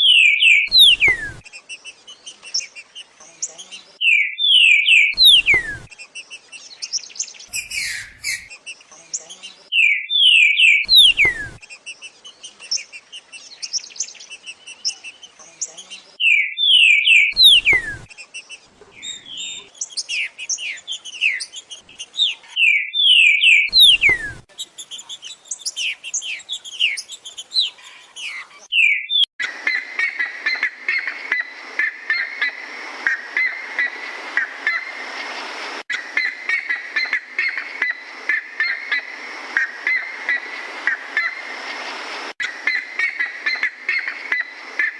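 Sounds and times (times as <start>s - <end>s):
songbird whistling: 0.0s - 1.4s, 4.0s - 6.0s, 6.8s - 8.5s, 9.7s - 11.6s, 16.2s - 18.1s, 19.0s - 27.7s, 28.7s - 29.8s
steady hiss: 29.6s - 44.9s.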